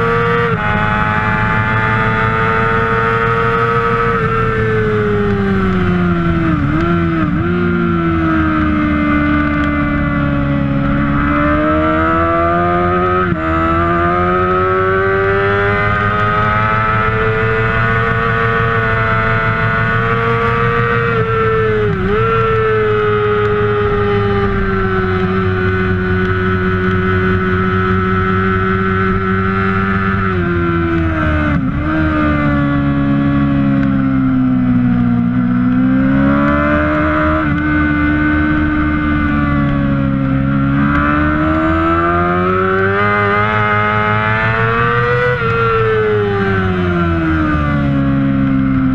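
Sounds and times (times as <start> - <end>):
motorcycle engine revving high: 0.0 - 48.9.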